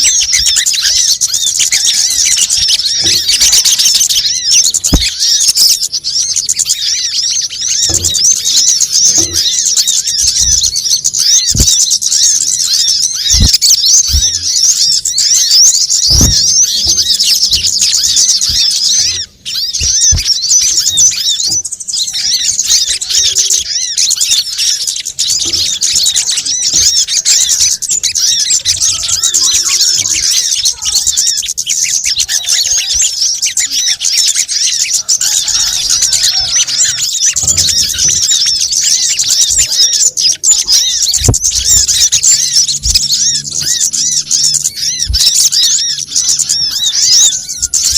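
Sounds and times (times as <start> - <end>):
small birds twittering and chirping: 0.0 - 47.9
short low thumps: 13.3 - 14.7.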